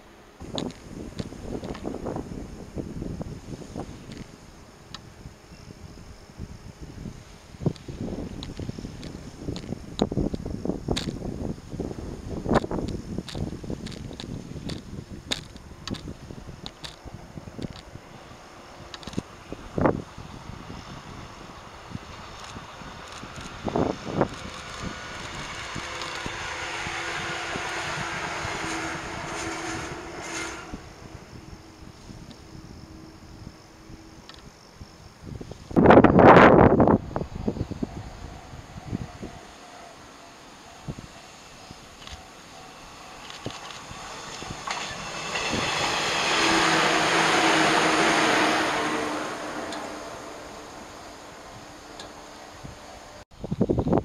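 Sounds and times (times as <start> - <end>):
electric train passing: 0.0 - 53.2
train wheels knocking over track: 41.9 - 50.3.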